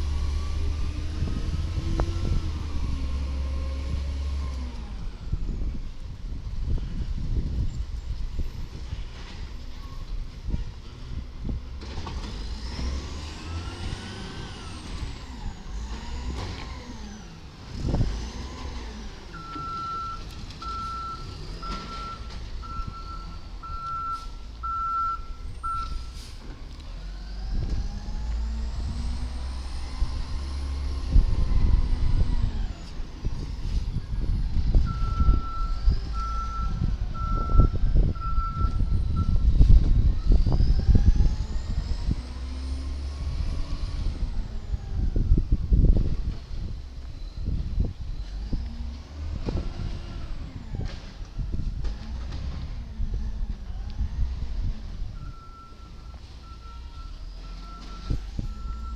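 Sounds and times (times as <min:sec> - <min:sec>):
truck diesel engine revving: 0:00.0 - 0:05.3, 0:11.1 - 0:46.7, 0:48.2 - 0:58.9
reversing alarm beeping: 0:19.3 - 0:26.2, 0:34.8 - 0:39.6, 0:55.2 - 0:58.9.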